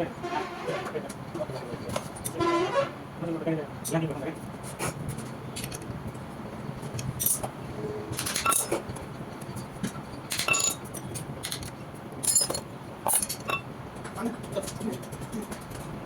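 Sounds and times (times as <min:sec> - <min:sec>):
metal tools clinking: 0:10.3 - 0:10.8, 0:12.2 - 0:13.6.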